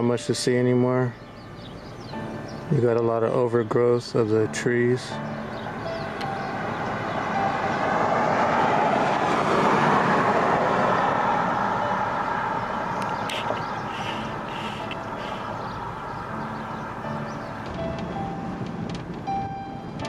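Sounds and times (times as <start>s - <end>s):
vehicle passing by: 5.2s - 19.4s.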